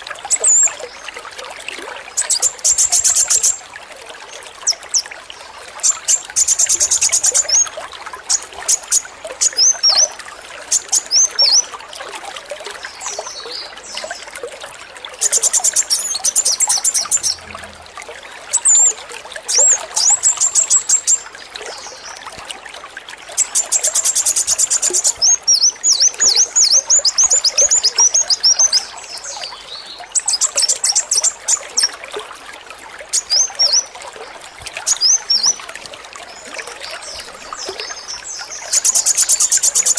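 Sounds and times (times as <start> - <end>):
water trickling: 0.0 - 39.9
bird singing rattling trills: 15.2 - 17.8, 18.5 - 18.9, 23.4 - 31.9, 36.9 - 39.9.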